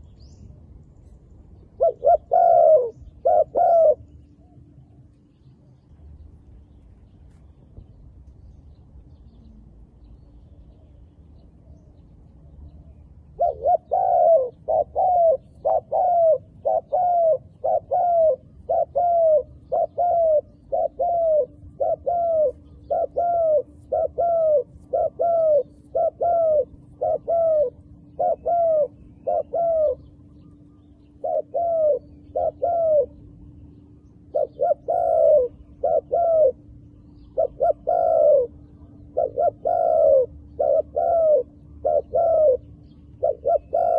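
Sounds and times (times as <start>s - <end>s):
faint low hum: 0.0s - 43.9s
dove cooing: 1.7s - 5.1s, 13.3s - 33.4s, 34.0s - 43.9s.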